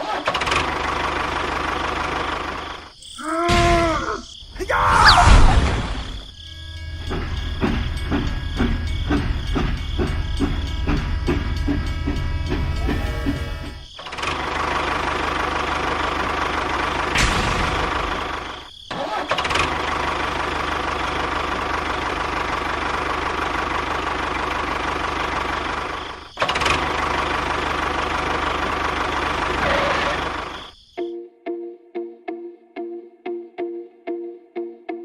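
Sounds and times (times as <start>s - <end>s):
small engine running: 0.0s - 3.0s, 6.5s - 30.8s.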